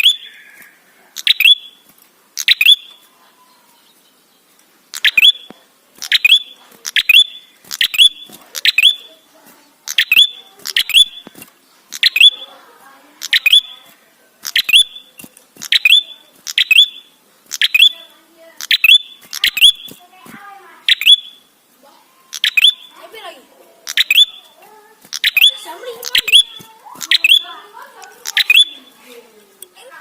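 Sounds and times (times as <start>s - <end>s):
bird calling with rising whistles: 0.0s - 1.8s, 2.4s - 3.0s, 5.0s - 5.5s, 10.0s - 11.3s, 12.0s - 12.4s, 13.3s - 13.7s, 14.5s - 15.1s, 15.7s - 18.0s, 18.6s - 20.0s, 20.9s - 21.5s, 22.3s - 22.9s, 23.9s - 24.5s, 25.2s - 27.5s, 28.3s - 28.9s.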